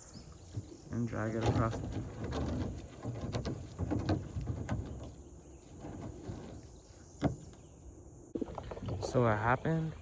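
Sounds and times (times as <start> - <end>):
kayak hull scraping riverbed: 0.0 - 10.0
hollow knocks from kayak hull: 0.5 - 7.7.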